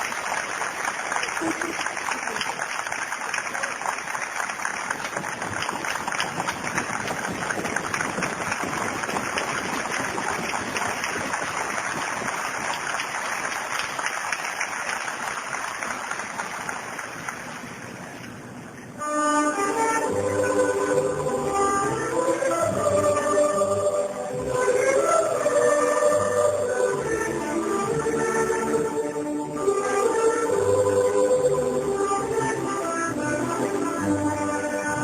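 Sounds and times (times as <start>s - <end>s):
steady rain falling: 0.0s - 18.6s.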